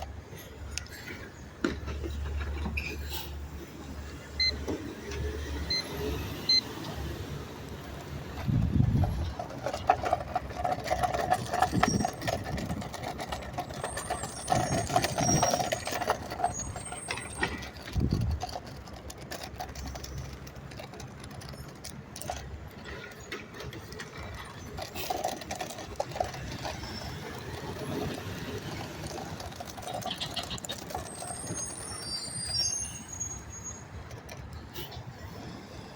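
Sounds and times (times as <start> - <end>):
squeals: 13.6 - 18.0, 29.8 - 34.0.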